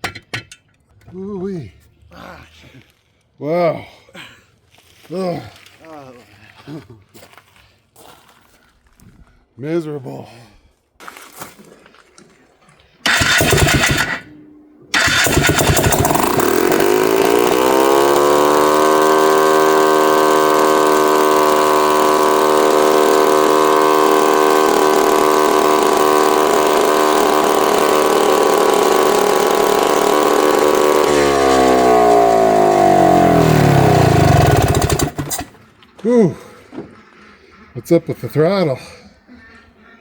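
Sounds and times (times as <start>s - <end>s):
two-stroke engine revving high: 13.0s - 14.3s, 14.9s - 35.6s.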